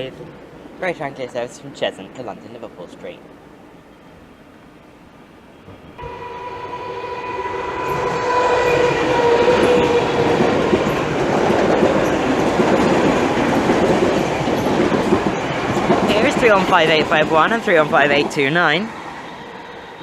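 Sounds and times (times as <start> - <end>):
train rumble and wheel clatter: 0.0 - 20.0
steady tone: 6.0 - 20.0.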